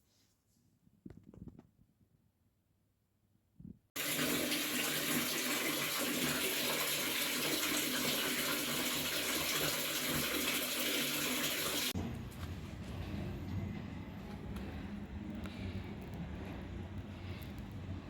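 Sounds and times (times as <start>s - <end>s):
water running from a tap: 4.0s - 12.0s.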